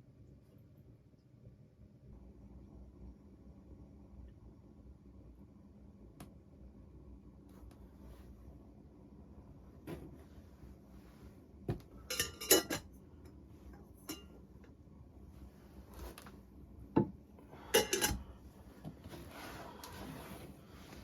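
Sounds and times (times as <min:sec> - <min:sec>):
metal cookware clinking: 0:12.1 - 0:12.9, 0:14.0 - 0:14.4, 0:17.7 - 0:18.2.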